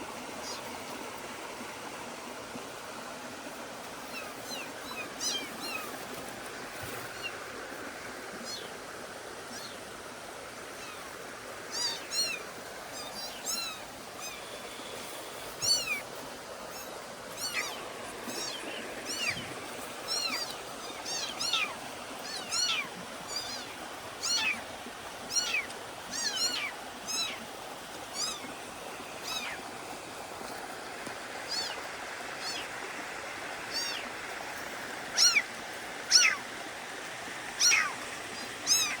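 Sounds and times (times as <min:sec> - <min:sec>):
kittens mewing: 0:36.1 - 0:36.4, 0:37.6 - 0:38.0.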